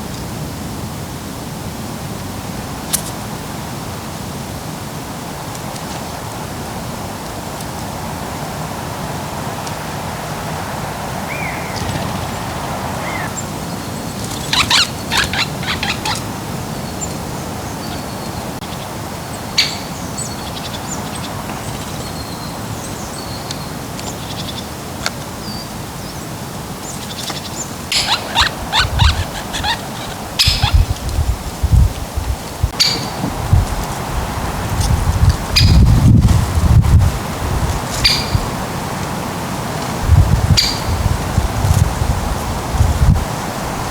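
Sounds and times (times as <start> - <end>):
steady background hiss: 0.0 - 43.9
songbirds chirping and whistling: 11.0 - 24.7, 25.4 - 31.3, 32.7 - 33.6, 35.5 - 36.0, 37.9 - 38.6, 40.1 - 41.2.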